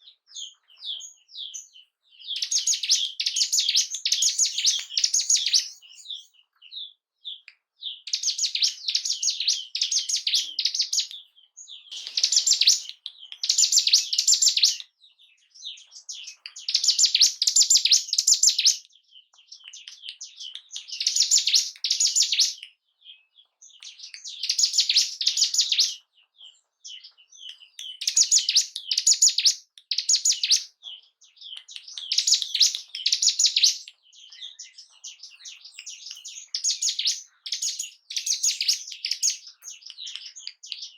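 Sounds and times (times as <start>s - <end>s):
bird single chirps: 0.0s - 26.0s
bird rapid chattering song: 0.0s - 40.9s.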